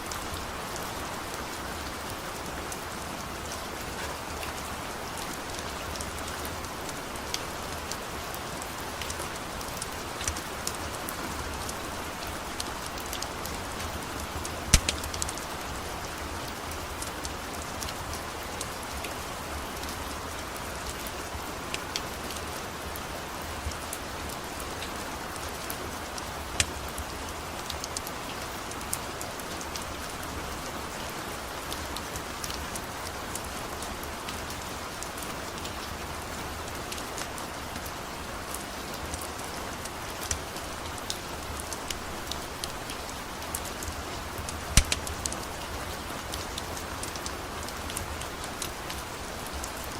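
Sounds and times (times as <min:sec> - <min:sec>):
steady rain falling: 0:00.0 - 0:49.9
sharp pops and clicks: 0:14.7 - 0:15.4, 0:44.5 - 0:45.4.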